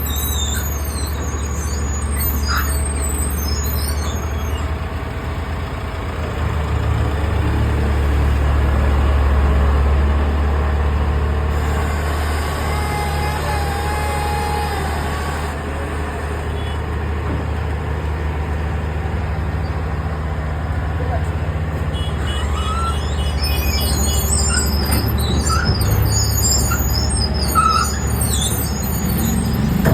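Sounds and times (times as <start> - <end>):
heavy diesel engine droning: 0.0 - 29.9.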